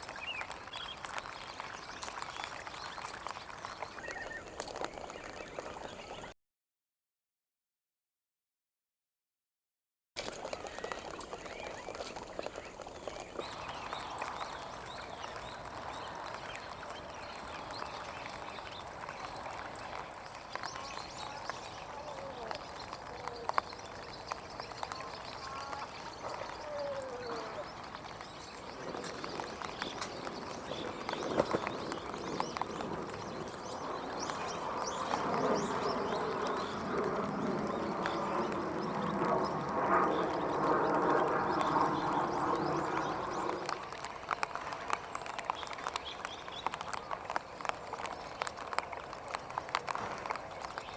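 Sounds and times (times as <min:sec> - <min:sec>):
rain pattering: 0:00.0 - 0:06.3, 0:10.2 - 0:50.9
high chirping bird calls: 0:13.4 - 0:40.4
swallows twittering: 0:13.4 - 0:44.4.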